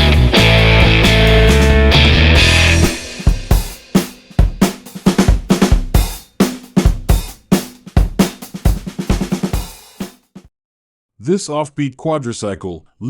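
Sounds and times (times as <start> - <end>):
rock band music: 0.0 - 9.8
drum kit playing a beat: 0.0 - 10.5.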